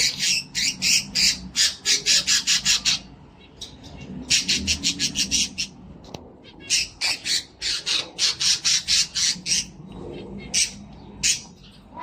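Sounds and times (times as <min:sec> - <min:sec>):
cockatiel squawking: 0:00.0 - 0:03.1, 0:06.5 - 0:09.8.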